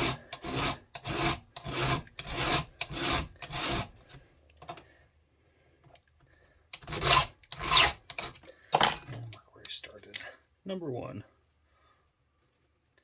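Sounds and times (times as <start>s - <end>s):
hand file rasping on chain: 0.0s - 4.1s, 6.7s - 8.4s.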